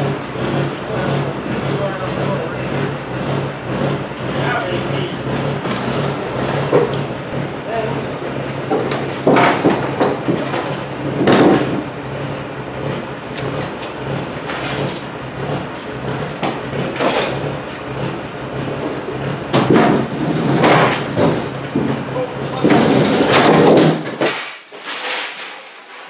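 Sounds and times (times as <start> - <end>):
engine running: 0.0 - 24.2
metal clanks and knocks: 5.2 - 26.0.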